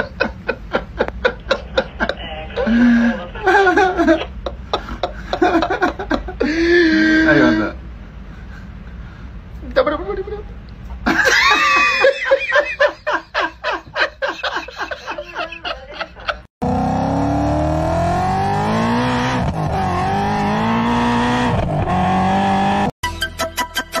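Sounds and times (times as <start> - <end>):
car engine revving: 16.6 - 22.9.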